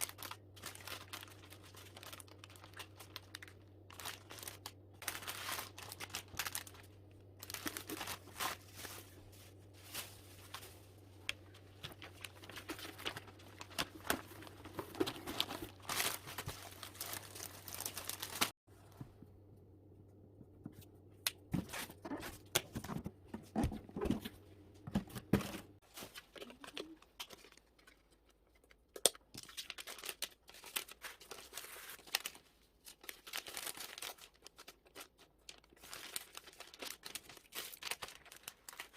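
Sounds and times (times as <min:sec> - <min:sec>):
packing materials crinkling: 0:00.0 - 0:18.6, 0:25.8 - 0:28.4, 0:29.0 - 0:38.9
low steady hum: 0:00.0 - 0:29.0.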